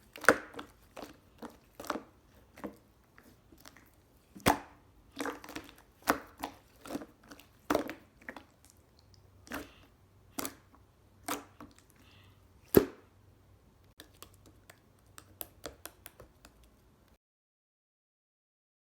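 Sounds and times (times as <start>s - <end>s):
slime squeezed with sticky pops: 4.4s - 8.4s.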